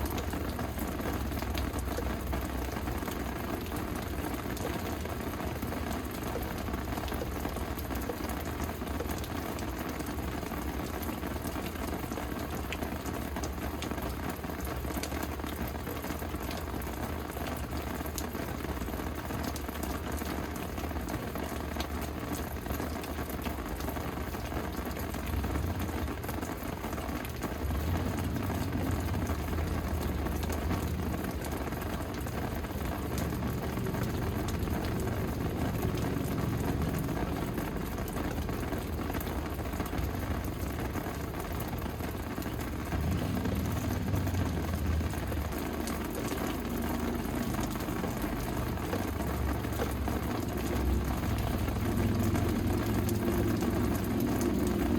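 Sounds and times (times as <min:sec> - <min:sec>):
steady rain falling: 0:00.0 - 0:54.9
low rumble: 0:27.6 - 0:41.4, 0:42.1 - 0:54.9.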